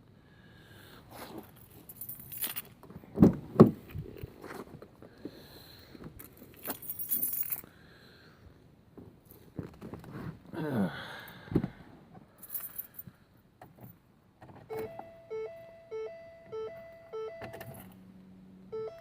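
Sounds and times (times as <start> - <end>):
car keys jangling: 1.4 - 2.8, 6.2 - 7.7, 12.4 - 13.1, 14.6 - 18.0.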